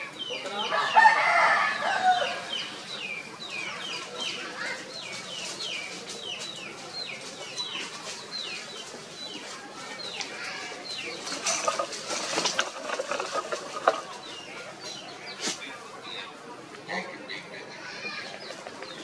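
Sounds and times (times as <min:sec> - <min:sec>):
rustling: 0:05.1 - 0:15.7.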